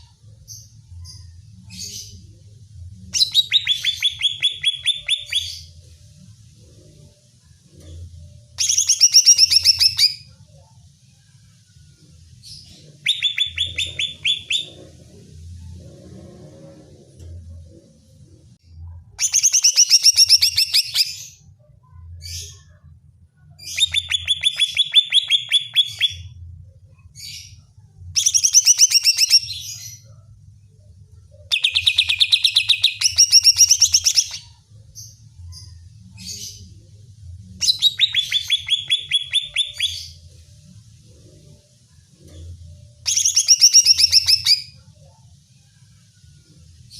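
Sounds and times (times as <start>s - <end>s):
bird song with fast trills: 8.6s - 10.3s, 12.9s - 14.8s, 19.2s - 21.4s, 28.2s - 30.0s, 31.5s - 36.7s, 37.6s - 40.2s, 43.0s - 44.8s.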